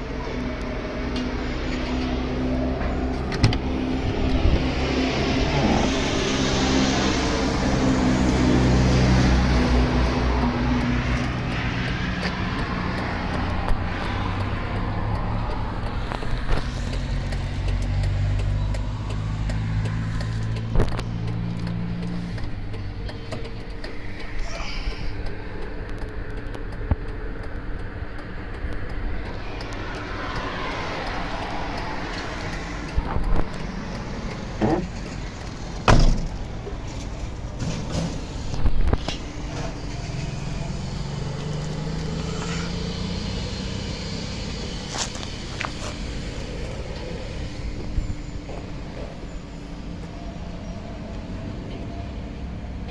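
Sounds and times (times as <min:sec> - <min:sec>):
diesel truck engine running: 0:00.0 - 0:52.9
loud thud: 0:35.8 - 0:36.4.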